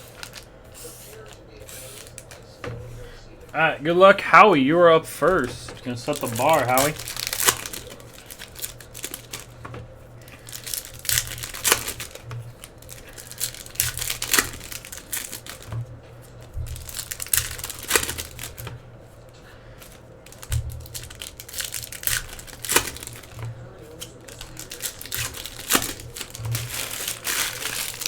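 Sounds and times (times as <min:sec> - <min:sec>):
foil wrapper crinkling and tearing: 0:00.0 - 0:28.0.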